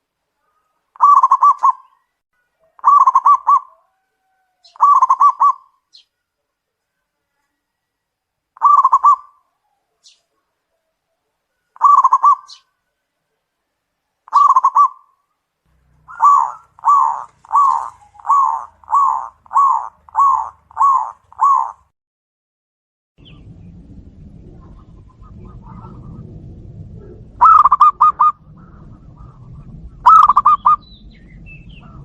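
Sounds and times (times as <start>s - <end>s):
dove cooing: 0.5s - 2.0s, 2.6s - 5.7s, 8.6s - 10.1s, 11.8s - 12.7s, 14.3s - 15.1s, 16.0s - 21.9s, 27.0s - 30.8s.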